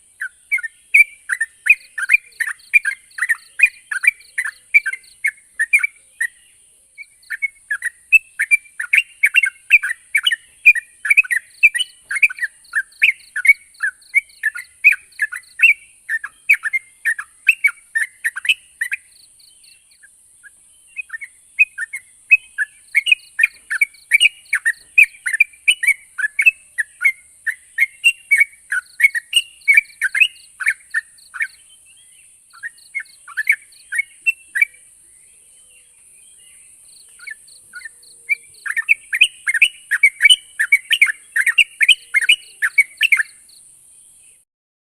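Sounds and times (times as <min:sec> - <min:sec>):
steady high-pitched hiss: 0:00.0 - 0:44.4
bulbul singing bubbly chirps: 0:07.0 - 0:31.7, 0:32.5 - 0:34.9, 0:36.4 - 0:43.6.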